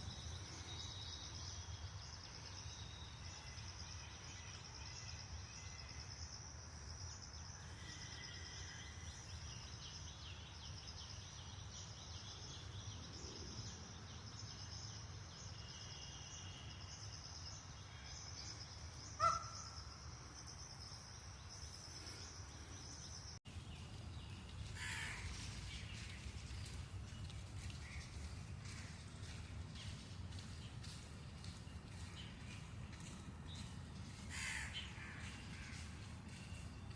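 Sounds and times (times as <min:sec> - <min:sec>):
bird calls: 0:17.9 - 0:23.4.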